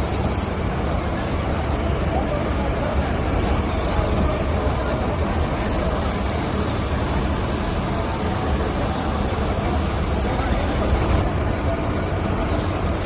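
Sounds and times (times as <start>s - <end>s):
hiss: 0.0s - 0.5s, 5.4s - 11.2s.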